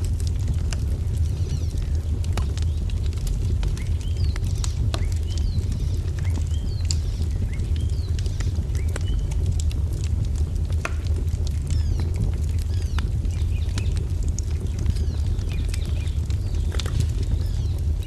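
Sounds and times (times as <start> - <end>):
wood fire crackling: 0.0 - 18.0
small birds chirping: 0.5 - 9.6, 11.5 - 18.0.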